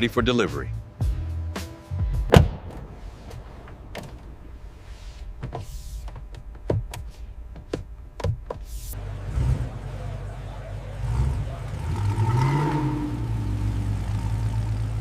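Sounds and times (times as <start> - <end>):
low steady rumble: 0.0 - 15.0
car door shutting: 2.3 - 8.9.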